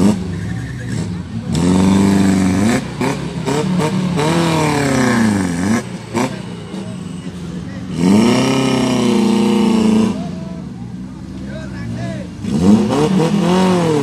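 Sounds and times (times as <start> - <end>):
car engine revving hard: 0.0 - 6.9, 7.8 - 10.4, 12.4 - 14.0.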